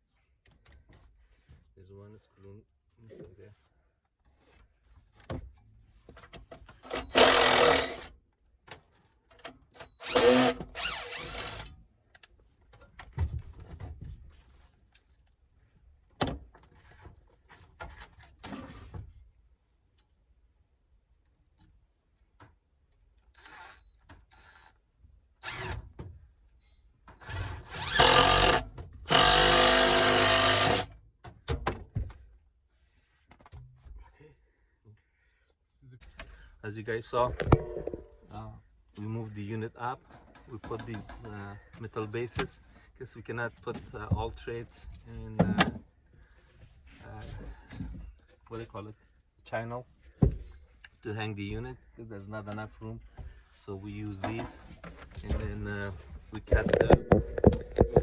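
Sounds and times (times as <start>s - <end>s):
power drill motor: 6.9s - 8.1s, 10.0s - 11.6s, 25.4s - 25.8s, 27.2s - 30.9s
small clicks and handling knocks: 56.5s - 58.0s.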